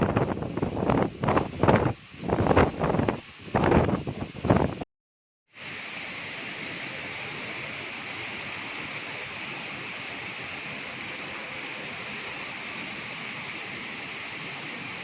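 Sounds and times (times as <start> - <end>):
heavy rain falling: 5.6 - 15.0.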